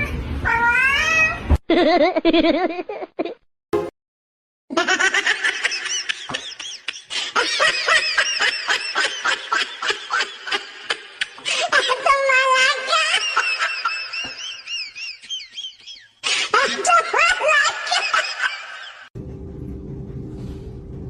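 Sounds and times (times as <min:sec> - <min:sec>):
high-pitched giggling laughter: 0:01.7 - 0:03.4, 0:04.7 - 0:19.1.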